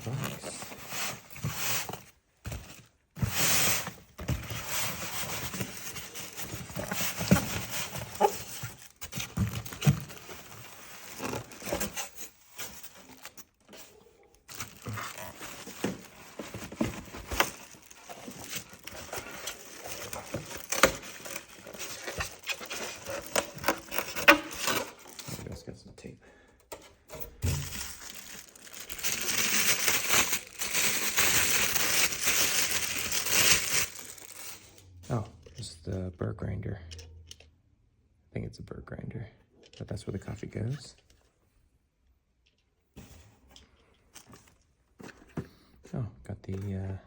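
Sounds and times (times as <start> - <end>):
cardboard packaging rustling: 0.0 - 25.6, 27.1 - 34.9.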